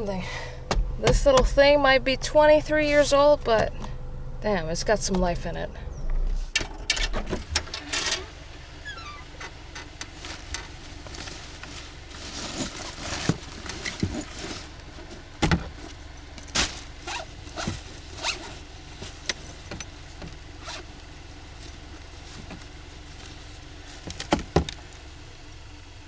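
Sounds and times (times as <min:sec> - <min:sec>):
gear being handled: 0:10.0 - 0:21.0
zipper rasping: 0:17.0 - 0:18.6.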